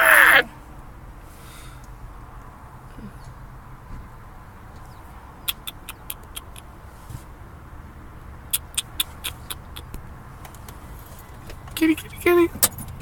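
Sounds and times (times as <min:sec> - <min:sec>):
sharp high clicks: 0:05.5 - 0:06.7, 0:08.5 - 0:10.0.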